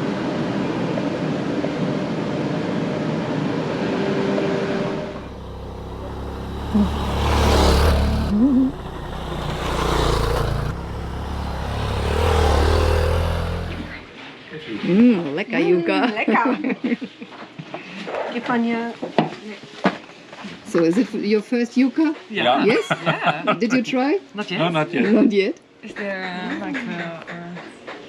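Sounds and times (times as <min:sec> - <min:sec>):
deep rumble of passing vehicles: 0:04.8 - 0:14.1
engine hum: 0:04.8 - 0:14.1.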